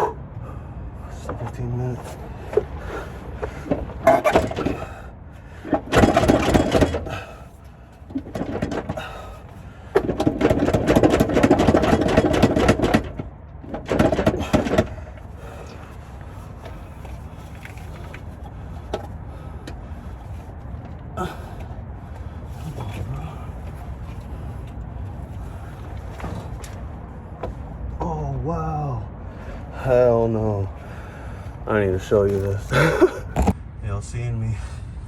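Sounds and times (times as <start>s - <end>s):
tools and parts clinking: 2.0s - 5.0s, 5.6s - 15.8s
impact wrench hammering bolts: 3.4s - 4.9s, 5.6s - 7.2s, 9.9s - 15.0s.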